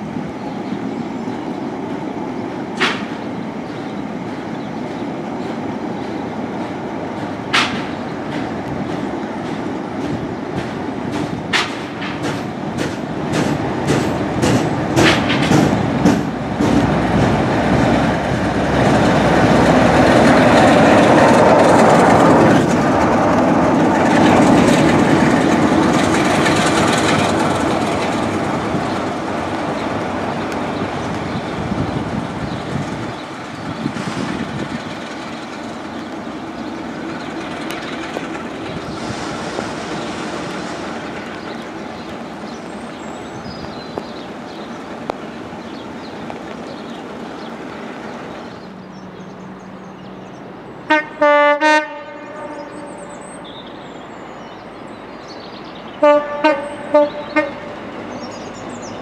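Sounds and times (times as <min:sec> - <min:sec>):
train rushing rumble: 0:00.0 - 0:59.0
wheels clicking over rail joints: 0:02.8 - 0:48.7.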